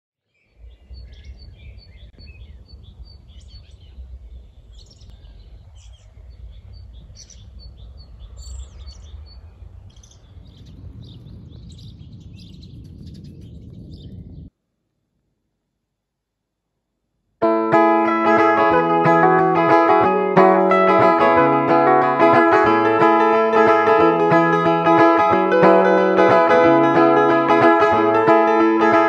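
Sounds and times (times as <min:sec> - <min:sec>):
small birds chirping and trilling: 0:00.3 - 0:14.5.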